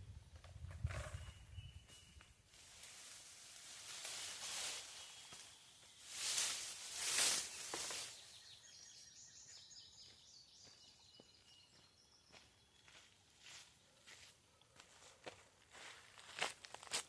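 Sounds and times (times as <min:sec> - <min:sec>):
small bird chirping: 0:00.7 - 0:02.4, 0:04.6 - 0:13.1
footsteps on gravel: 0:10.0 - 0:17.0.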